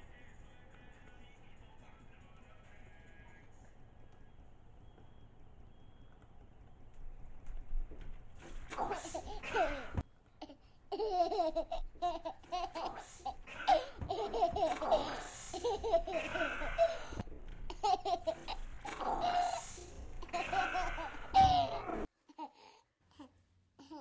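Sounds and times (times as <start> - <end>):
person laughing: 10.9 - 22.1.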